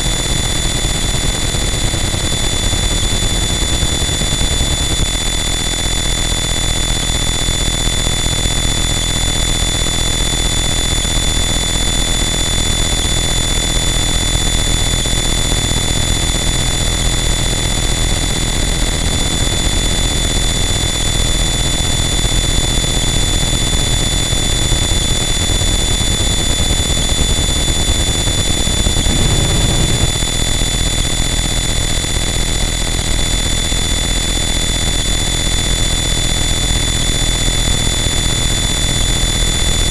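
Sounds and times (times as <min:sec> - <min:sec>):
high whines: 0:27.0 - 0:30.2
dense distorted noise: 0:27.8 - 0:30.2
heavy low rumble: 0:28.3 - 0:30.2.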